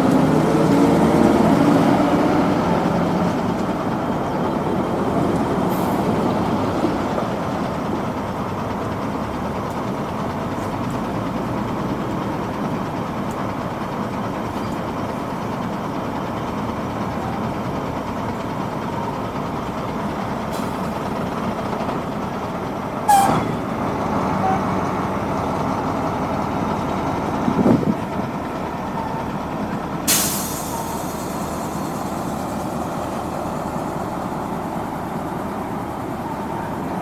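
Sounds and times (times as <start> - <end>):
diesel engines running: 0.0 - 37.0
short sharp hisses: 30.1 - 31.7.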